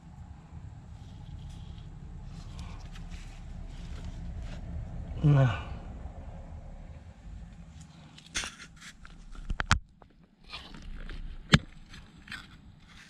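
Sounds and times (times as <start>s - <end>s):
tools scraping and rustling: 0.9s - 4.7s, 7.7s - 9.8s.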